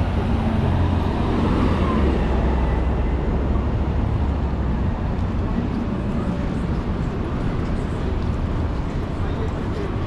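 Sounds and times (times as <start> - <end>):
city hum: 0.0 - 10.0.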